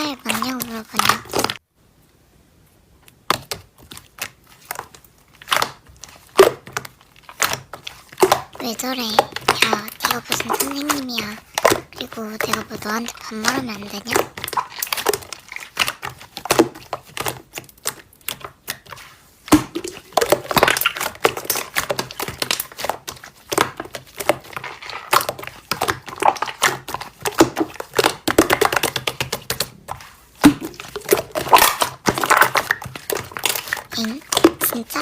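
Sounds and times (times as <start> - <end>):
slime squeezed by hand: 30.1 - 34.7.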